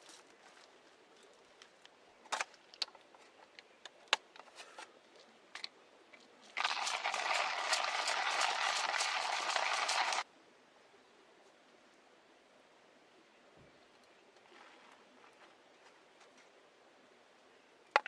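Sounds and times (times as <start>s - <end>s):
campfire crackling: 6.6s - 10.2s.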